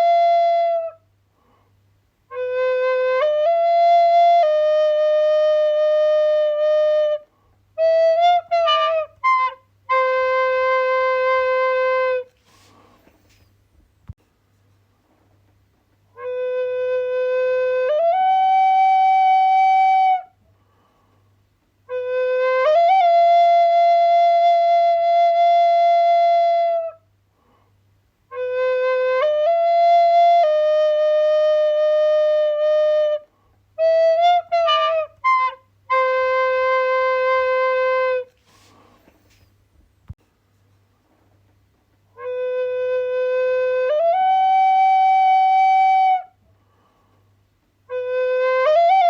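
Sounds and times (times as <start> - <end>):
solo flute: 0.0 - 1.1, 2.3 - 13.5, 16.1 - 20.4, 21.8 - 27.1, 28.3 - 39.5, 42.1 - 46.4, 47.9 - 49.0.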